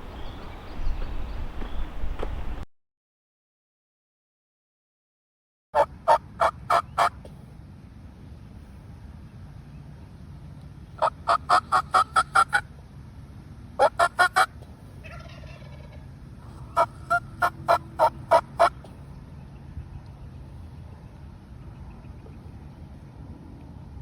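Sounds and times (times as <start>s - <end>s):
turkey yelping: 5.8s - 7.2s, 11.0s - 12.6s, 13.8s - 18.9s.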